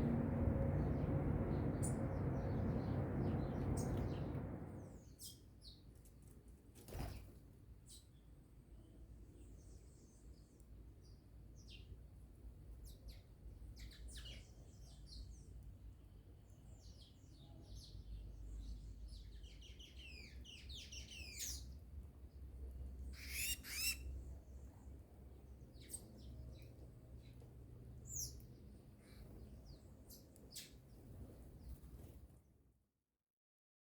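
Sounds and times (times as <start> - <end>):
faint low rumble: 0.0 - 5.1
songbirds chirping: 0.0 - 5.9, 12.8 - 32.2.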